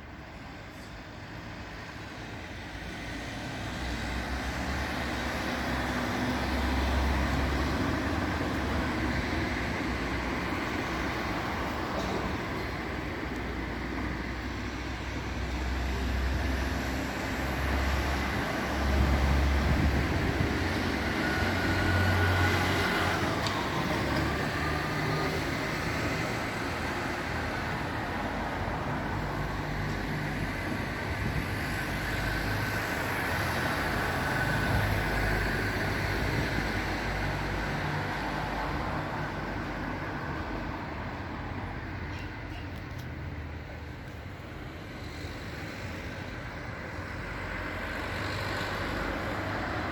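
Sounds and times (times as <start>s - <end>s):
cars passing: 2.0s - 49.9s
heavy vehicles passing: 2.6s - 49.9s.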